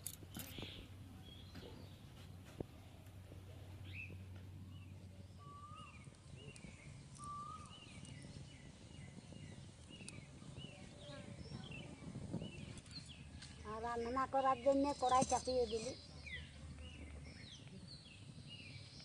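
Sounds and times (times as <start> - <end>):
birds chirping: 0.0 - 19.0
whistled bird notes: 5.2 - 13.7.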